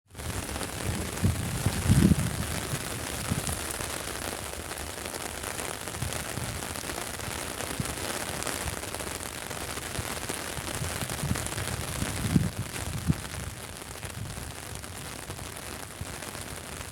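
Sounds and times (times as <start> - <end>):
short low thumps: 0.2 - 3.8
heavy rain hissing: 0.2 - 12.0.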